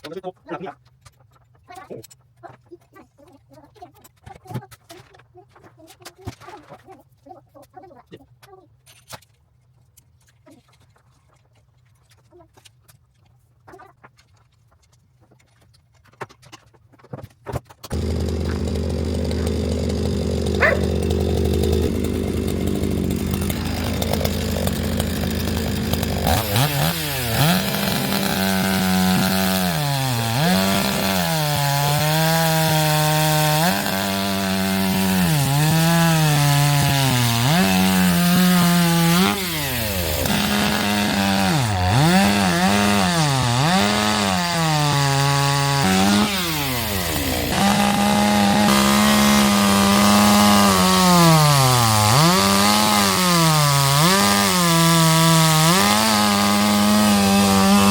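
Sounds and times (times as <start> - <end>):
chainsaw cutting wood: 17.8 - 57.9.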